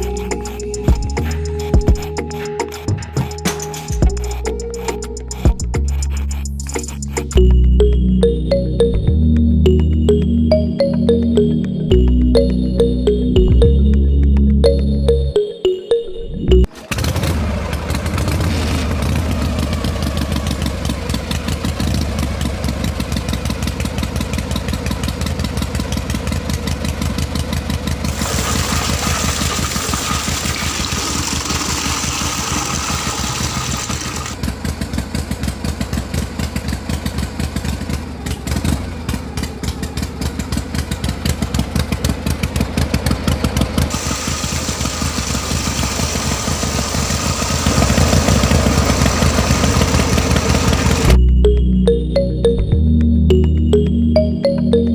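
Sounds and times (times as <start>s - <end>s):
small engine running: 0.0s - 7.4s, 16.7s - 51.2s.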